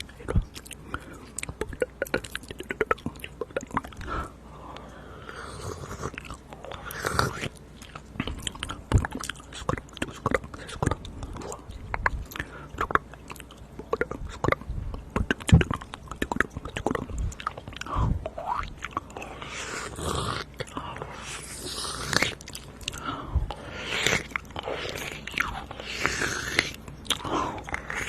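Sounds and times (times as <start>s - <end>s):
wet mouth clicks and smacks: 0.0s - 4.1s, 6.2s - 19.2s.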